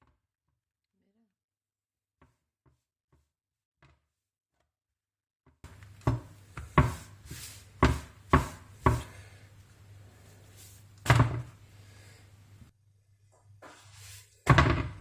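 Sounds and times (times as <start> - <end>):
knocks on hard kitchen surface: 6.0 - 7.0, 7.8 - 9.1, 14.5 - 15.0.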